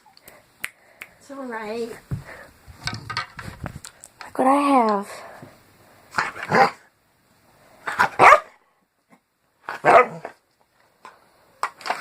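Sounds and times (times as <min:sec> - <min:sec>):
dog barking: 0:06.2 - 0:06.8, 0:07.9 - 0:08.6, 0:09.7 - 0:10.4.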